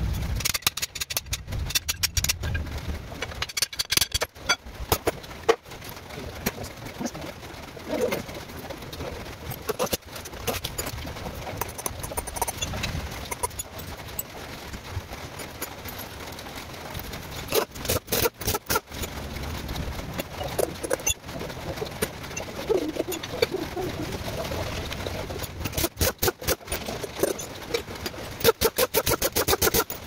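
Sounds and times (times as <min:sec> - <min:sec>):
steady background noise: 0:00.0 - 0:30.0
bird cooing: 0:22.4 - 0:24.8.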